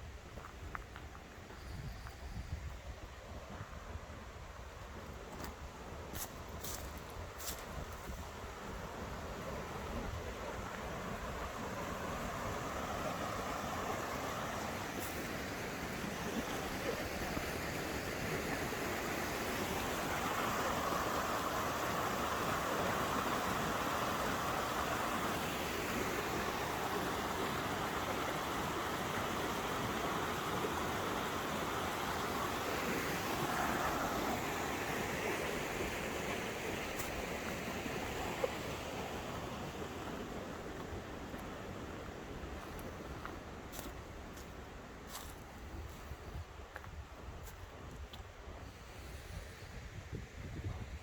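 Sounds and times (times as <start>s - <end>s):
water rushing over rocks: 8.7s - 43.4s.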